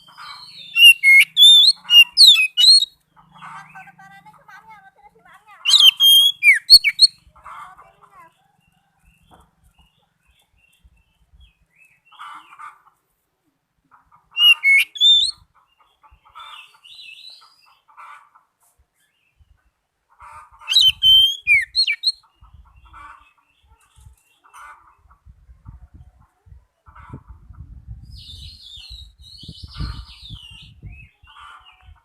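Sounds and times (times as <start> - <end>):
bird singing whistled notes: 0.0 - 3.0, 5.7 - 7.2, 14.4 - 15.4, 20.7 - 22.2
scratchy bird phrases: 0.0 - 8.5, 14.4 - 15.3, 20.6 - 22.1.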